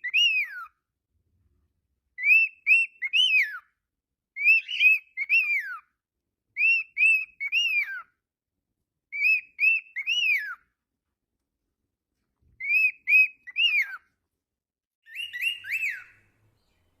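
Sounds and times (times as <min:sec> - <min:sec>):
cockatiel whistling: 0:00.0 - 0:00.8, 0:02.2 - 0:03.8, 0:04.4 - 0:05.9, 0:06.6 - 0:08.2, 0:09.1 - 0:10.7, 0:12.6 - 0:14.1, 0:15.1 - 0:16.3.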